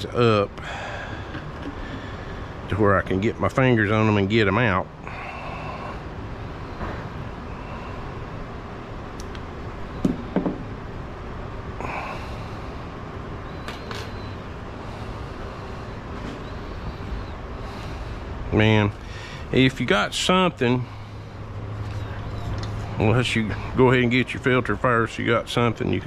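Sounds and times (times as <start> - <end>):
steady background hiss: 0.0 - 26.0
metal knocks with ring: 10.0 - 10.6.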